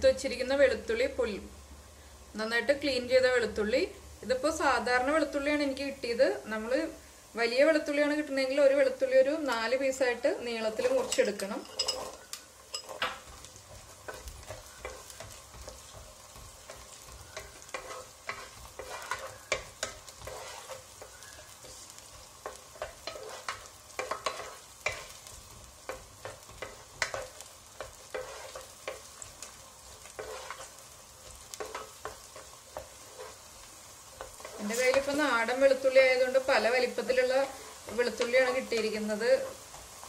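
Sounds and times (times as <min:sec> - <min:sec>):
garlic and ginger sizzling in oil: 0:00.0 - 0:40.0
wooden spatula scraping pan: 0:10.7 - 0:40.0.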